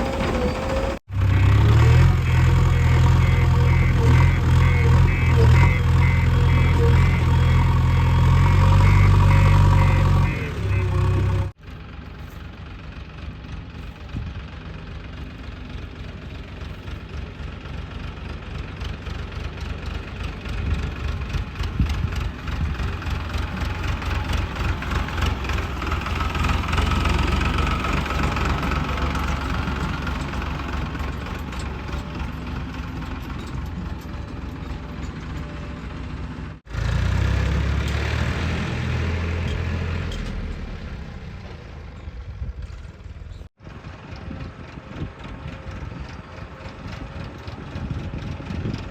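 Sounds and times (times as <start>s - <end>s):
heavy diesel engine knocking: 8.8s - 36.6s, 43.6s - 48.9s.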